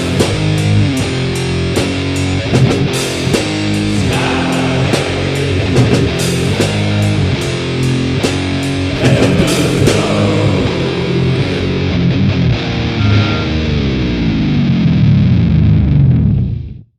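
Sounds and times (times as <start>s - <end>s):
drum hits: 0.0s - 10.4s
heavy metal music: 0.0s - 16.7s.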